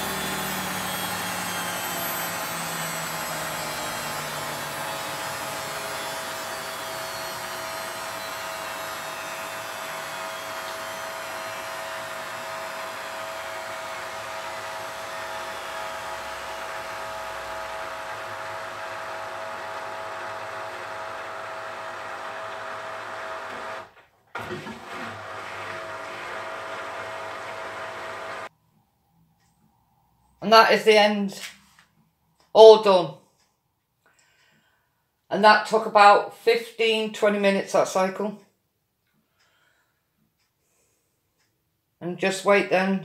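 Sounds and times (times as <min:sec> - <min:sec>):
washing machine spinning: 0:00.0 - 0:28.5.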